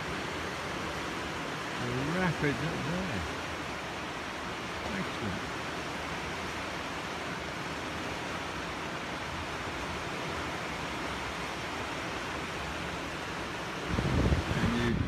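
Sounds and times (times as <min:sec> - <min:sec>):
white water rushing: 0:00.0 - 0:15.0.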